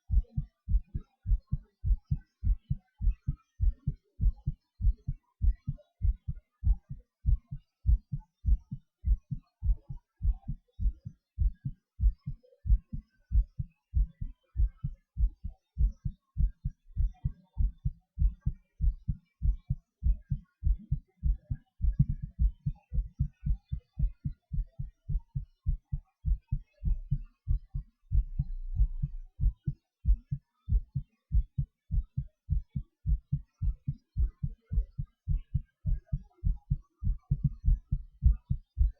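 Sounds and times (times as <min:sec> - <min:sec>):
heartbeat thuds: 0:00.0 - 0:38.9
low rumble: 0:28.1 - 0:29.5.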